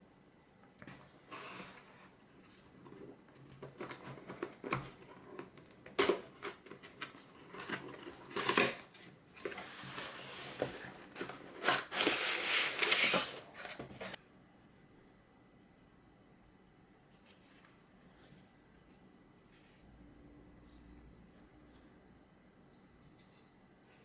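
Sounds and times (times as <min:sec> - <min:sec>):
packaging rustling and sliding: 0:01.3 - 0:14.2.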